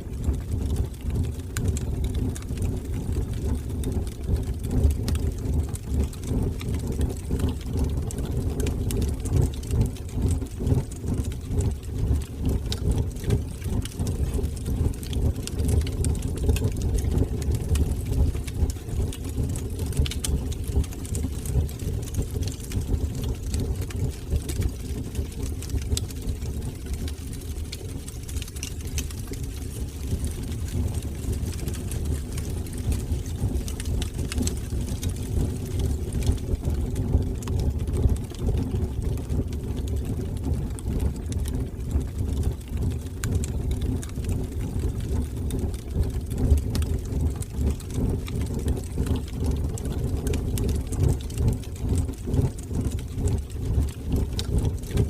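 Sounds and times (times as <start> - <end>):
fire crackling and popping: 0.0 - 55.0
fire rumbling in fireplace: 0.0 - 55.0.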